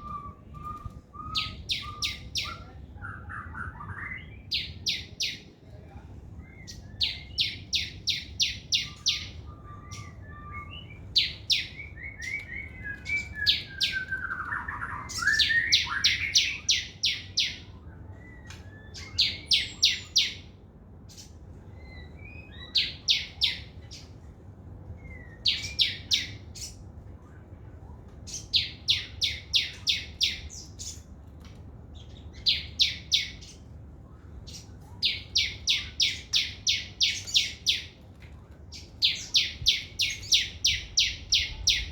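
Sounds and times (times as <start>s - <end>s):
soft bird twittering: 0.0s - 5.4s, 6.4s - 20.5s
songbird singing: 0.0s - 5.6s, 6.3s - 20.5s, 21.1s - 24.2s, 24.8s - 26.9s, 28.3s - 31.2s, 31.9s - 38.0s, 38.6s - 41.9s.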